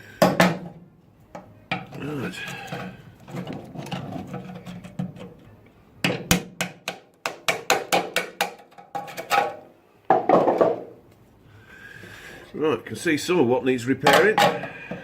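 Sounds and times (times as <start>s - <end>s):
hand tool knocking: 6.0s - 9.1s.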